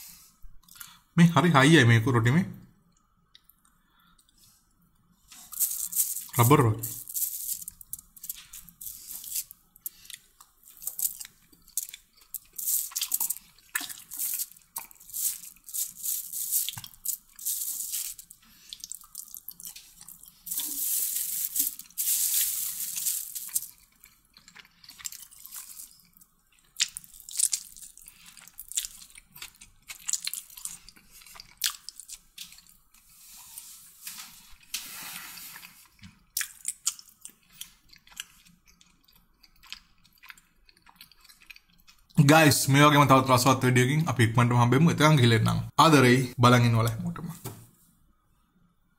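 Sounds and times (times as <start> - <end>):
wet chewing and crunches: 5.3 - 33.2, 35.5 - 42.2.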